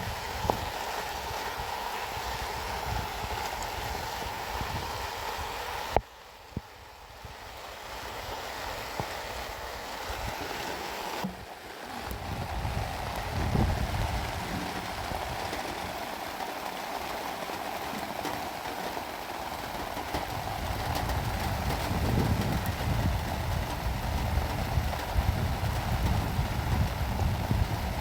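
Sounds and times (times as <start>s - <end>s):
steady rain: 0.0s - 28.0s
wind buffeting microphone: 11.2s - 16.2s, 19.6s - 28.0s.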